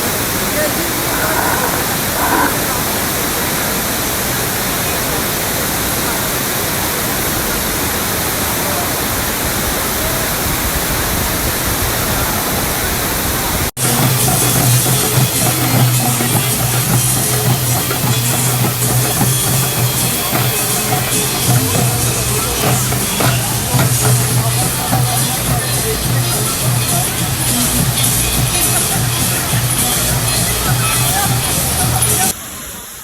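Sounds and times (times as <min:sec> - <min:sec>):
rushing falling water: 0:00.0 - 0:33.0
music with drums: 0:13.8 - 0:32.4.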